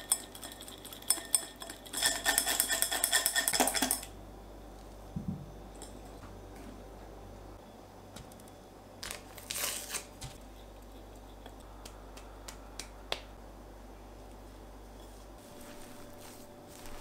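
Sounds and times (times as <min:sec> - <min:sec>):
low steady hum: 0:00.0 - 0:17.0
crinkling rustling noise: 0:15.3 - 0:17.0.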